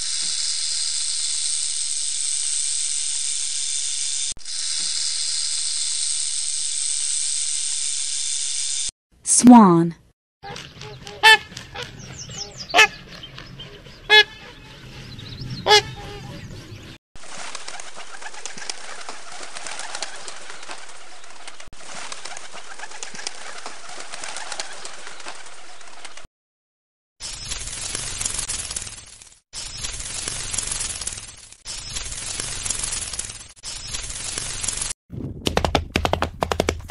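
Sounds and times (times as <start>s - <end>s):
swan honking: 10.4s - 16.5s.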